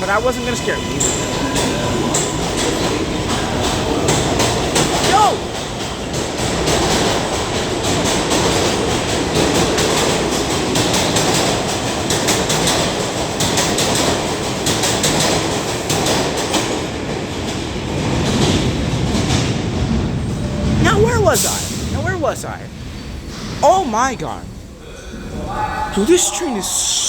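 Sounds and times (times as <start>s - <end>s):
subway train rumbling on rails: 0.0s - 27.0s
wheels clicking over rail joints: 1.0s - 20.8s.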